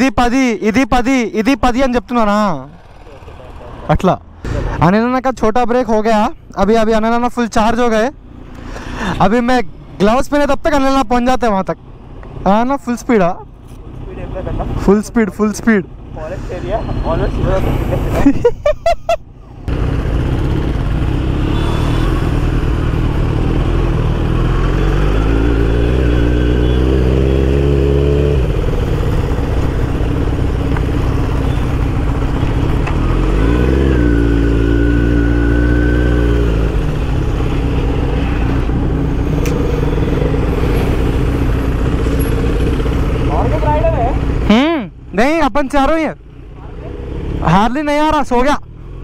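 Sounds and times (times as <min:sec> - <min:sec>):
motorcycle engine at speed: 0:19.6 - 0:44.8.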